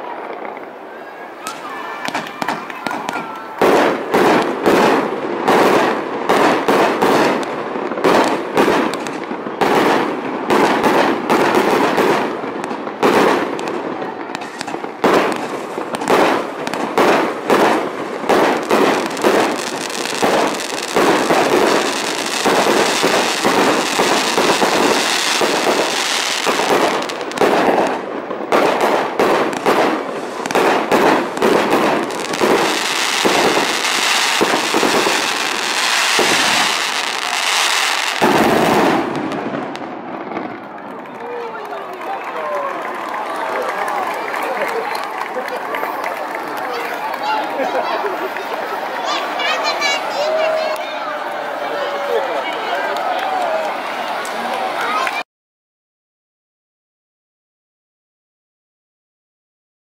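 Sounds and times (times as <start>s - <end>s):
fireworks bangs: 0.0s - 55.2s
fireworks crackling hiss: 0.1s - 40.4s.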